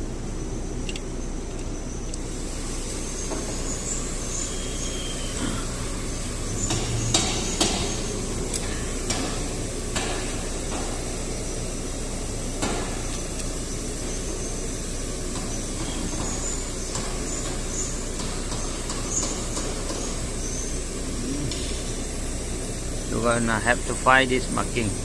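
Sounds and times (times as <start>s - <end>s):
steady background noise: 0.0s - 25.0s
metal tools knocking on engine parts: 5.4s - 11.4s.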